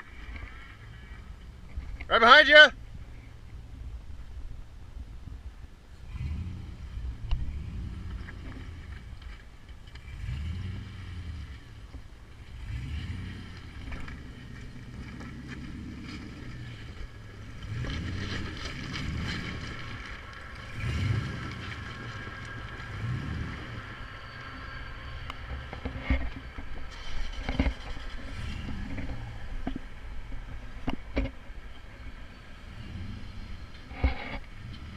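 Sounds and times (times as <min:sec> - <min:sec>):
steady whine: 0:13.6 - 0:34.9.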